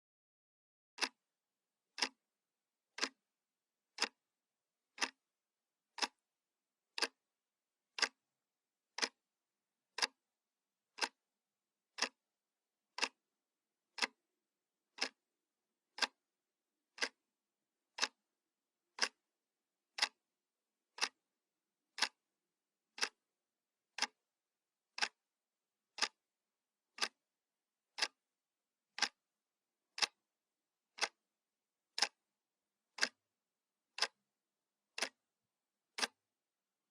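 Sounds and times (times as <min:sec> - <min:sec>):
clock ticking: 0:01.0 - 0:01.2, 0:01.9 - 0:02.2, 0:02.9 - 0:03.2, 0:04.0 - 0:04.2, 0:04.9 - 0:05.2, 0:06.0 - 0:06.2, 0:07.0 - 0:07.2, 0:07.9 - 0:08.2, 0:08.9 - 0:09.2, 0:10.0 - 0:10.2, 0:11.0 - 0:11.2, 0:12.0 - 0:12.2, 0:12.9 - 0:13.2, 0:13.9 - 0:14.2, 0:14.9 - 0:15.2, 0:16.0 - 0:16.2, 0:16.9 - 0:17.2, 0:17.9 - 0:18.2, 0:19.0 - 0:19.3, 0:20.0 - 0:20.2, 0:20.9 - 0:21.2, 0:21.9 - 0:22.2, 0:23.0 - 0:23.2, 0:24.0 - 0:24.2, 0:24.9 - 0:25.2, 0:26.0 - 0:26.2, 0:27.0 - 0:27.2, 0:28.0 - 0:28.2, 0:29.0 - 0:29.2, 0:30.0 - 0:30.2, 0:31.0 - 0:31.2, 0:32.0 - 0:32.2, 0:32.9 - 0:33.2, 0:34.0 - 0:34.2, 0:34.9 - 0:35.2, 0:36.0 - 0:36.2.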